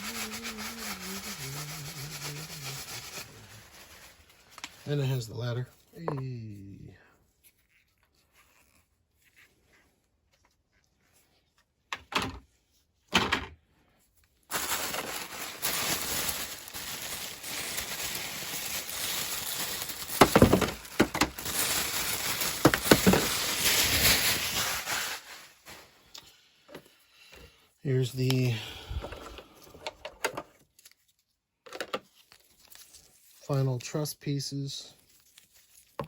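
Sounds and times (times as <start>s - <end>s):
packing paper crinkling: 0.0s - 6.1s, 14.5s - 26.2s, 32.0s - 34.0s, 35.0s - 36.0s.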